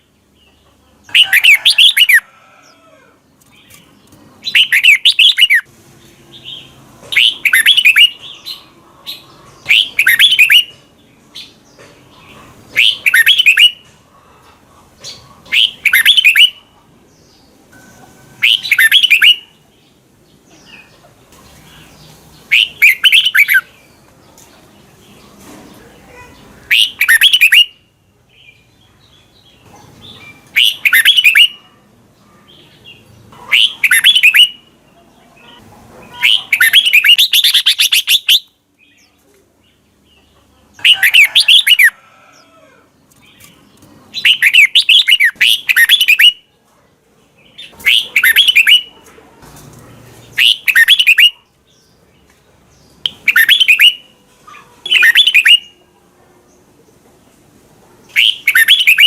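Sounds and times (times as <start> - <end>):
bulbul singing: 3.4 - 5.7, 6.3 - 10.8, 12.7 - 14.0, 15.0 - 24.0, 26.2 - 31.8, 32.6 - 34.8, 35.5 - 42.0, 43.2 - 46.5, 47.4 - 48.9, 50.3 - 54.2, 54.8 - 55.9, 58.0 - 59.0.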